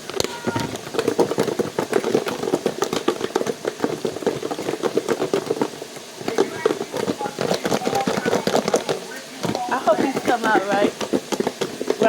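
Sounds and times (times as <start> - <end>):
chicken frying in hot oil: 0.0 - 12.0.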